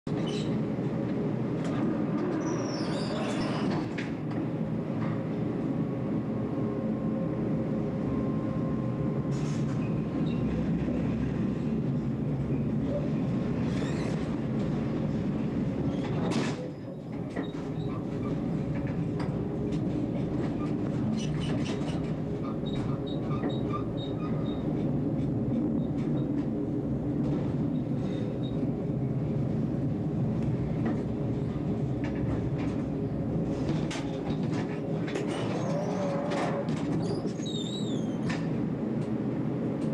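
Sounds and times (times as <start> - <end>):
tram rumbling on track: 0.0 - 39.9
tram wheel squeals: 0.1 - 0.6, 2.2 - 3.9, 12.9 - 14.3, 15.8 - 18.5, 20.2 - 25.0, 27.7 - 28.7, 35.2 - 38.5.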